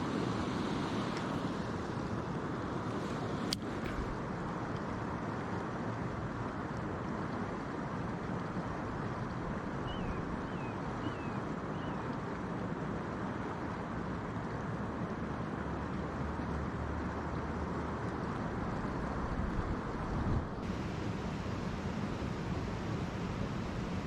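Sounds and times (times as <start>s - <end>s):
wind on microphone: 19.2s - 24.0s.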